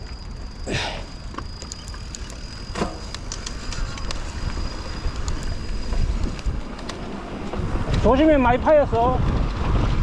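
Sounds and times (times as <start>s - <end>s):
bike scraping surges: 0.0s - 9.1s
bike tyres on dirt trail: 0.0s - 10.0s
small rattling clicks: 1.3s - 7.0s
wind on microphone: 3.0s - 10.0s.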